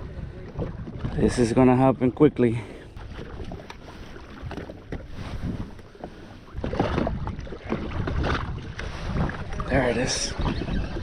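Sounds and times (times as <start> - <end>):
water noise: 0.0 - 11.0
wind buffeting microphone: 0.0 - 11.0.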